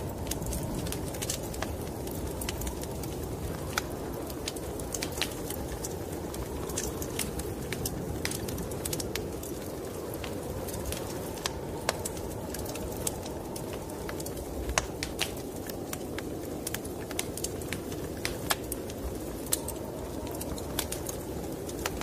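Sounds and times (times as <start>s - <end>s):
snowstorm wind rushing: 0.0s - 22.0s
wood fire crackling and popping: 0.0s - 22.0s.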